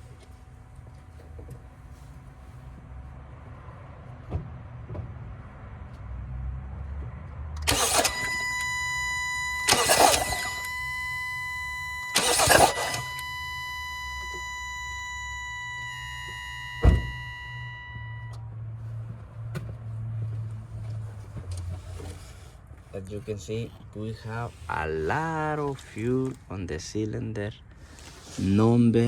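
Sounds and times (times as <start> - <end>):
sharp click: 7.6 - 14.7
car engine cranking: 7.6 - 18.4
steady high tone: 7.7 - 18.4.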